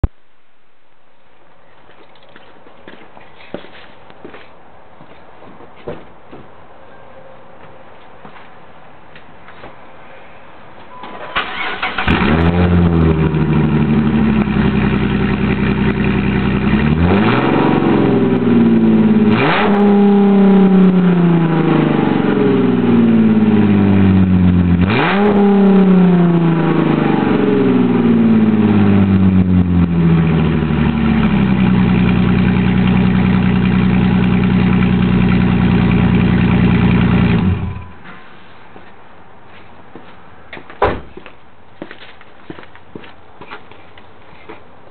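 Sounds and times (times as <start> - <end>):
car engine cranking: 11.2 - 17.4
car engine idling: 11.5 - 17.0, 26.7 - 38.0
loud car engine revving: 11.6 - 37.8.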